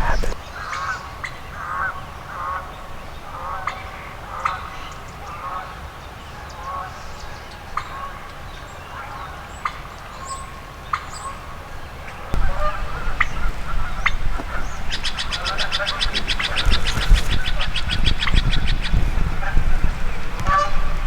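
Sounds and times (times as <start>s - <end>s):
turkey clucking and cutting: 0.0s - 0.4s, 12.4s - 19.6s.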